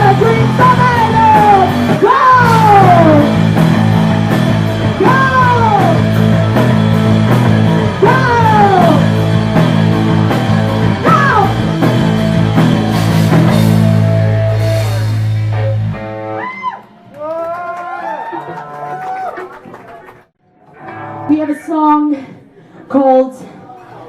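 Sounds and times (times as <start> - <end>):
live punk rock band: 0.0 - 16.8.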